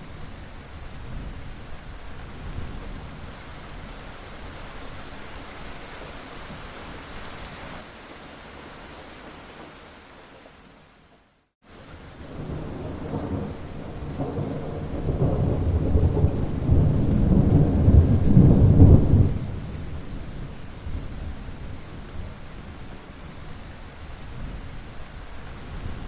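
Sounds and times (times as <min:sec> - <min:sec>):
steady rain: 0:00.0 - 0:26.0
thunder rumbling: 0:12.2 - 0:21.8.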